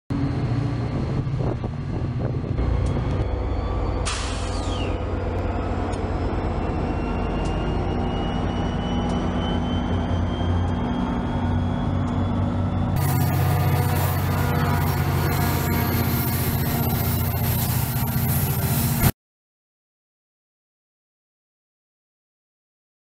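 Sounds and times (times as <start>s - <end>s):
thin whine rising in pitch: 0.1s - 19.1s
diesel train engine hum: 0.1s - 19.2s
air brake hiss: 4.0s - 5.0s.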